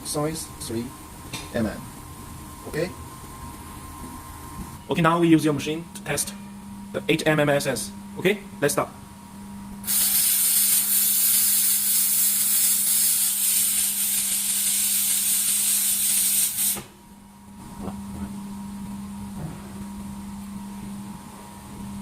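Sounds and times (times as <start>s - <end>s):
laser welder hissing: 9.8s - 16.9s.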